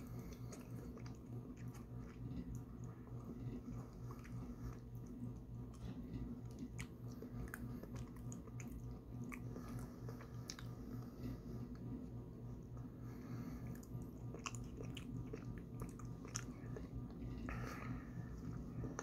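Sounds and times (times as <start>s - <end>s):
chewing soft food: 0.0s - 19.0s
steady low hum: 0.0s - 19.0s.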